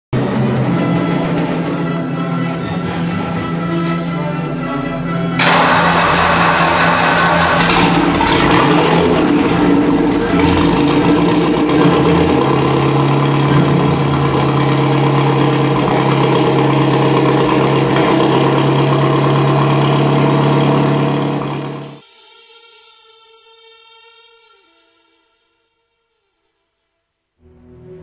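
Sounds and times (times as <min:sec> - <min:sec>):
car engine running: 0:05.4 - 0:22.0.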